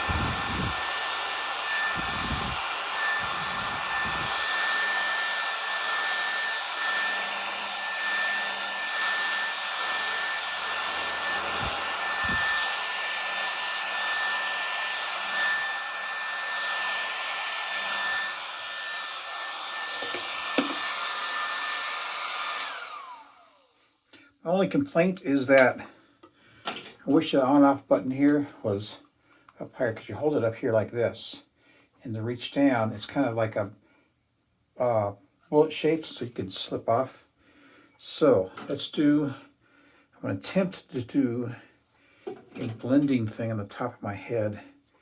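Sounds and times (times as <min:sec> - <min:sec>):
hair clipper motor whining: 0:00.0 - 0:23.8.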